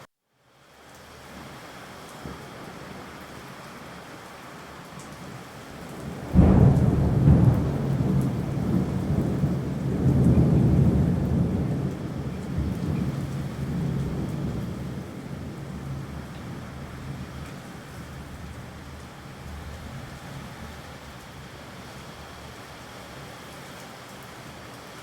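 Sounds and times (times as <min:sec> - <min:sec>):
steady rain: 0:00.0 - 0:25.0
thunder clap and rumble: 0:05.8 - 0:22.0.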